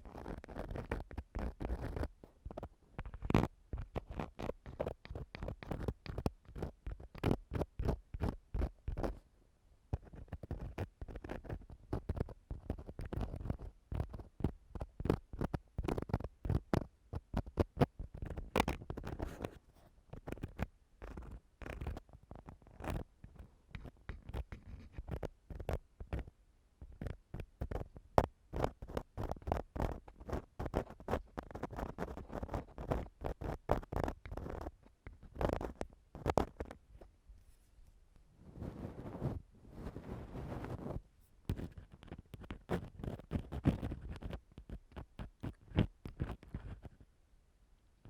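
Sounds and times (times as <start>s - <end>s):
tool scraping inside ear microphone: 28.6s - 47.0s.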